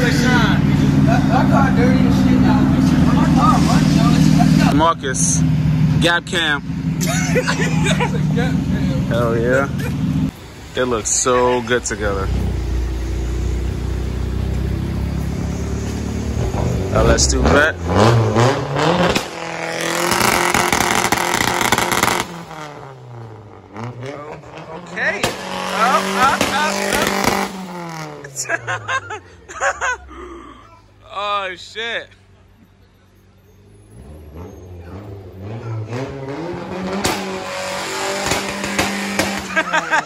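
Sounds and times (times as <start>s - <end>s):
car engine revving: 0.0s - 30.3s, 33.4s - 40.0s
sharp bangs: 17.8s - 22.8s, 25.1s - 28.2s, 36.7s - 39.8s.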